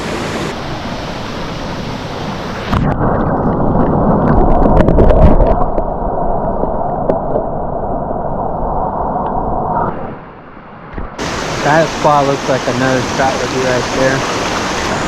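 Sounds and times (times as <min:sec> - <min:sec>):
creek water flowing: 0:00.0 - 0:02.8, 0:11.2 - 0:15.0.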